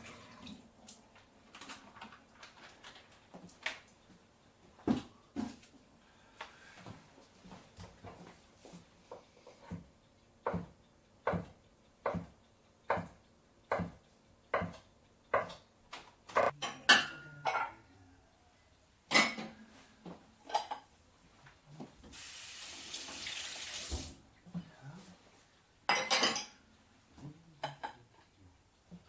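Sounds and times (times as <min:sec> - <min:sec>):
tap water running: 0:00.0 - 0:01.0, 0:22.1 - 0:24.2
dishes and cutlery clattering: 0:25.9 - 0:26.6.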